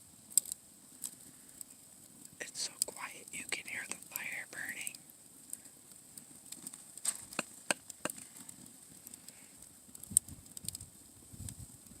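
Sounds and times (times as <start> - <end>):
wood fire crackling: 0.0 - 12.0.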